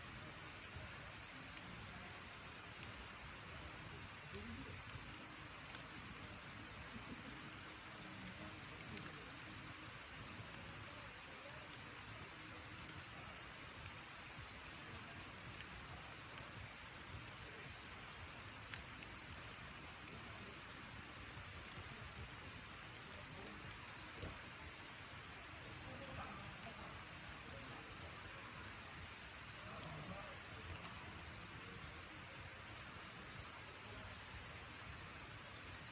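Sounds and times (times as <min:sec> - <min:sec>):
campfire hissing: 0:00.0 - 0:35.9
fire crackles and pops: 0:00.0 - 0:35.9.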